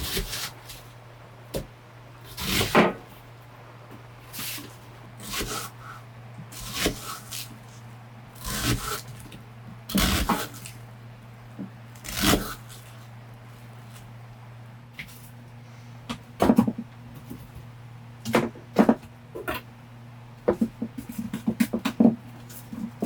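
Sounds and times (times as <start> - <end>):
steady low hum: 0.0 - 23.0
rustling and knocks of handling: 20.4 - 23.0.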